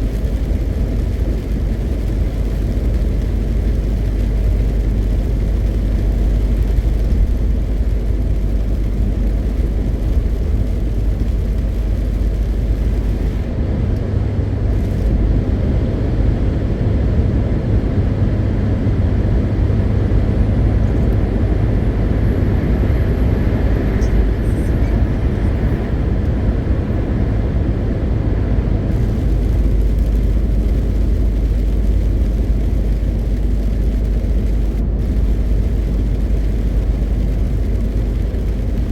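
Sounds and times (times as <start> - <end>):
truck diesel engine running: 0.0 - 15.4, 18.2 - 38.9
tyre and road noise: 18.9 - 38.9.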